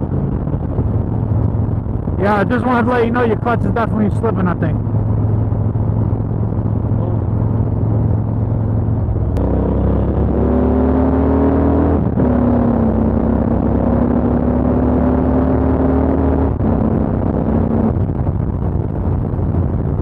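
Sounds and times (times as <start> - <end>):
motorcycle engine running: 4.8 - 11.0.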